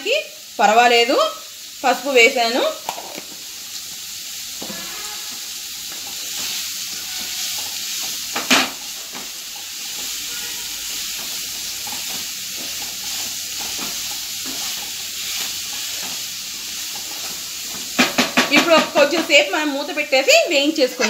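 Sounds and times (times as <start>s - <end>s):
vegetables sizzling in oil: 0.0s - 21.0s
spatula stirring and scraping: 4.6s - 19.5s
spatula knocking against pan: 18.0s - 19.5s.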